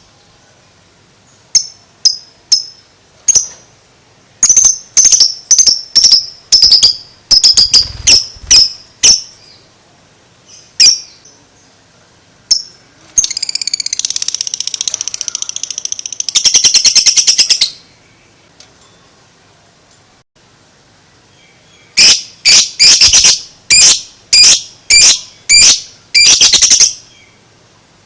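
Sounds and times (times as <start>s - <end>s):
bird chattering trill: 4.4s - 9.4s, 12.5s - 17.8s, 22.0s - 27.1s.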